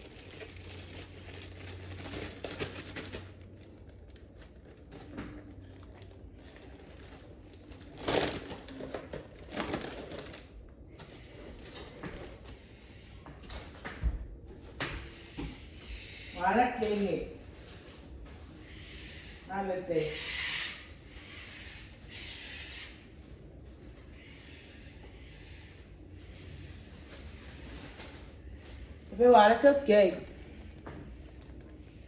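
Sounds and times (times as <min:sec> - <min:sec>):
rustling and crinkling: 0:00.0 - 0:15.8, 0:16.7 - 0:19.1, 0:25.0 - 0:32.0.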